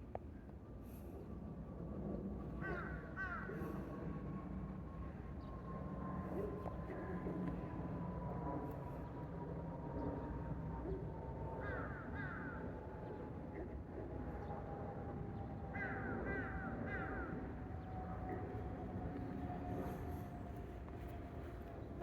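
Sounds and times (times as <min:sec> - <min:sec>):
crows cawing: 0:02.6 - 0:03.5, 0:11.6 - 0:12.6, 0:15.7 - 0:17.4
faint rumble with falling whine: 0:11.8 - 0:22.0.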